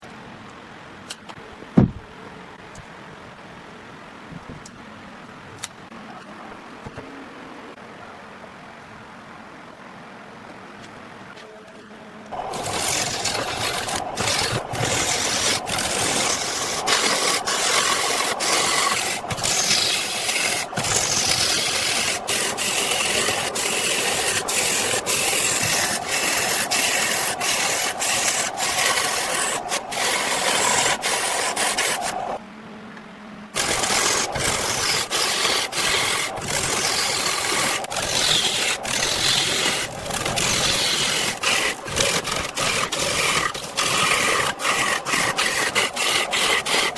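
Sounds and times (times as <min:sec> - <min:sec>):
rasping tool scraping log: 0:12.4 - 0:32.4, 0:33.6 - 0:46.9.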